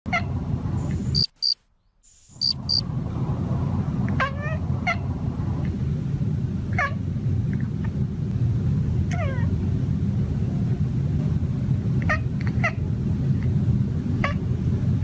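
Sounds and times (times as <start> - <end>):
high-pitched chirps: 1.1 - 1.6, 2.2 - 2.8
cat chattering: 1.2 - 1.6, 2.4 - 2.8
low rumble: 2.4 - 15.0.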